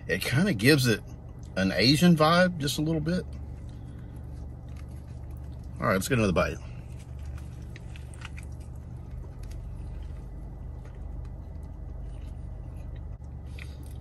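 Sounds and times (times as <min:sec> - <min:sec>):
low car cabin hum: 0:00.0 - 0:14.0
person chewing crispy food: 0:03.2 - 0:14.0.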